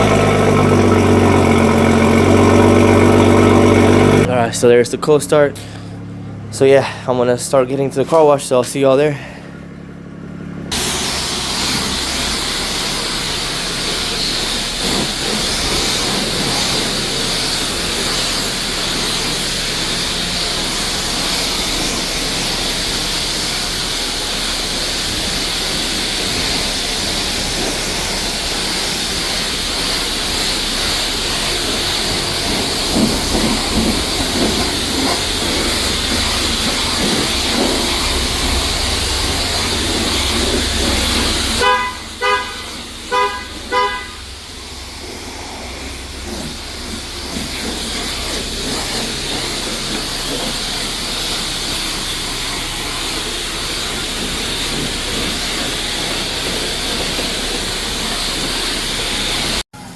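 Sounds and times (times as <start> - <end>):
low rumble: 31.0 - 49.9.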